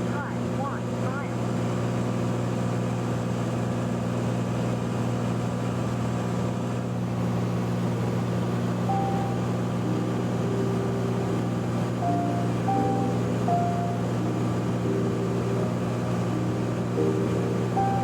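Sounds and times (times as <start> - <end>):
airplane engine and propeller drone: 0.0 - 18.0
short high tones: 8.9 - 18.0.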